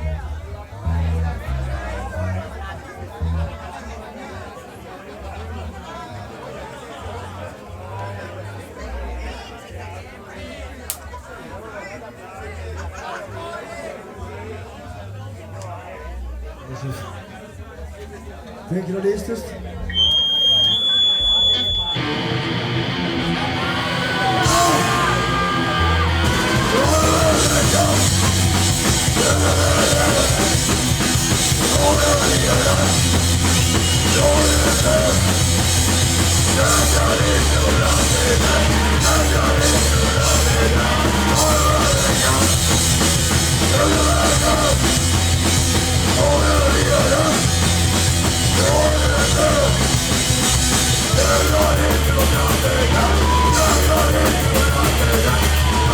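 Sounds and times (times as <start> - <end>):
punk band playing: 19.9 - 55.9
person yelling vocals: 23.6 - 28.3.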